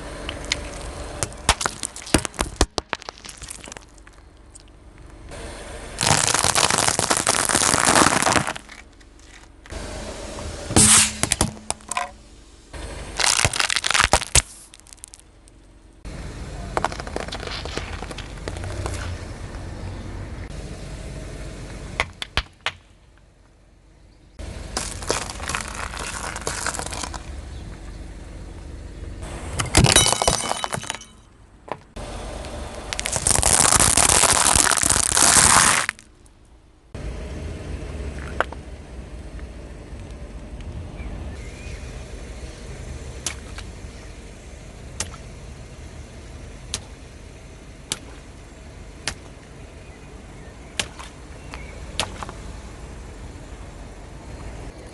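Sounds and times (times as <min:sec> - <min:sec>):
car and tyre noise: 0:00.0 - 0:54.9
tyre crushing brittle objects: 0:01.2 - 0:04.7, 0:06.0 - 0:09.6, 0:13.2 - 0:15.3, 0:16.7 - 0:19.2, 0:24.7 - 0:27.4, 0:29.6 - 0:31.2, 0:32.8 - 0:36.0.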